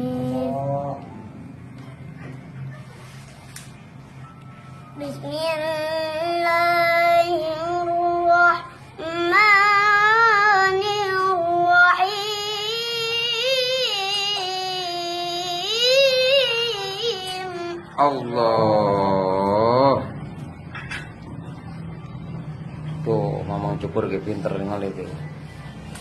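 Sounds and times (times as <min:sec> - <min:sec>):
child chanting melodic recitation: 0:00.0 - 0:01.0, 0:05.0 - 0:19.8.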